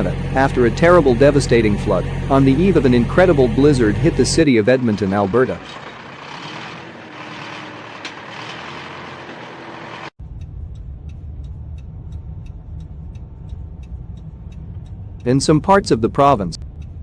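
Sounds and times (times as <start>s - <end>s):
low vehicle rumble: 0.0s - 17.0s
faint regular ticking: 10.3s - 17.0s.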